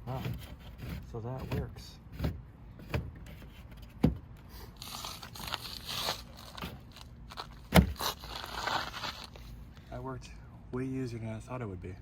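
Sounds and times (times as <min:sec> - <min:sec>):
plastic scraping and crinkling: 0:04.8 - 0:09.5.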